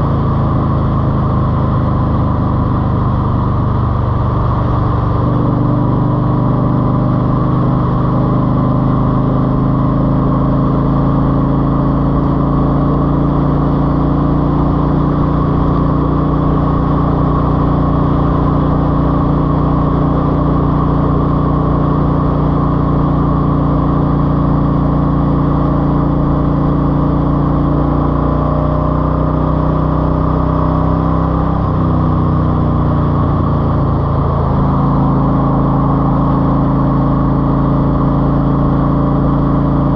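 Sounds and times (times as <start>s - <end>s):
car engine idling: 0.0s - 6.6s, 31.5s - 39.9s.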